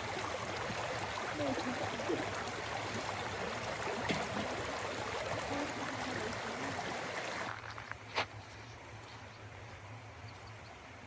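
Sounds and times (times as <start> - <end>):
river water rushing: 0.0 - 7.8.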